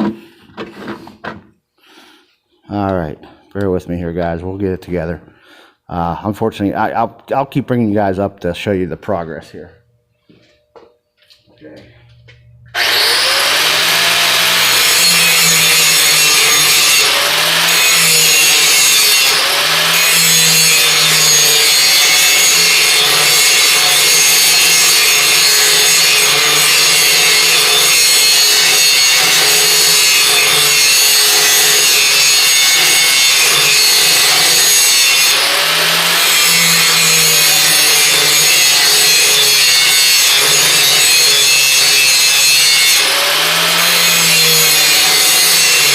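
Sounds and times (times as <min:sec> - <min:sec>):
angle grinder grinding metal: 0:12.7 - 0:45.9.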